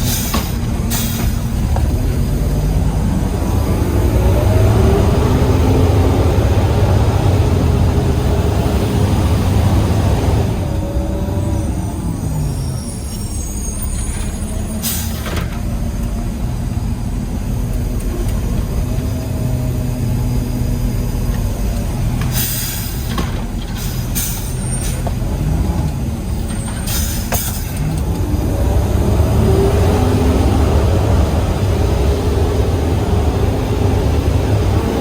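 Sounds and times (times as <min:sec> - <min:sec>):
compressed air hissing: 0:00.0 - 0:01.7, 0:22.3 - 0:23.2
truck engine running: 0:00.0 - 0:35.0.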